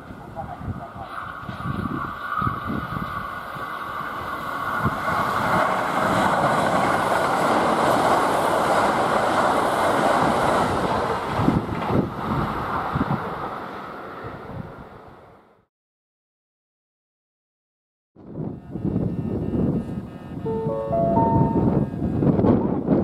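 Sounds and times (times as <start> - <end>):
train passing at speed: 0.0 - 15.7, 20.4 - 23.0
rail joint clacks: 4.4 - 12.8.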